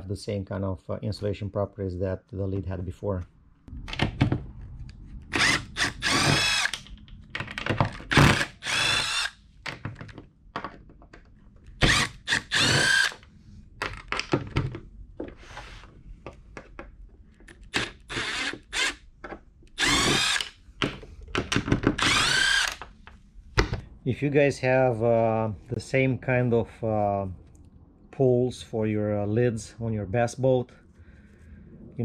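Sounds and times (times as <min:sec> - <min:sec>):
power drill driving screws: 0:05.3 - 0:06.8, 0:08.0 - 0:09.4, 0:11.8 - 0:13.2, 0:17.7 - 0:19.0, 0:19.8 - 0:20.6, 0:22.0 - 0:22.8.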